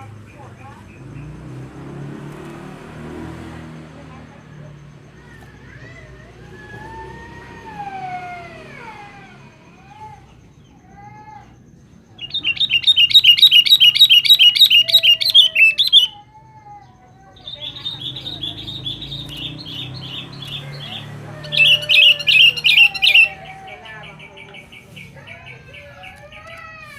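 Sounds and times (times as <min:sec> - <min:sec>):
bird fast chattering: 0:12.2 - 0:16.2, 0:17.4 - 0:26.4
bird whistled calls: 0:12.2 - 0:16.2, 0:17.4 - 0:24.8.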